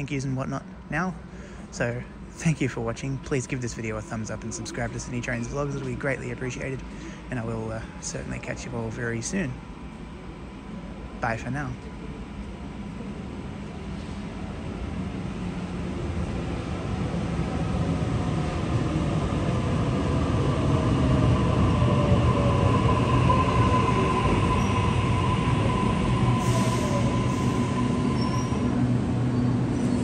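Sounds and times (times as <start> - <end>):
electric train arriving: 0.9 - 30.0
train brakes whining: 21.9 - 30.0.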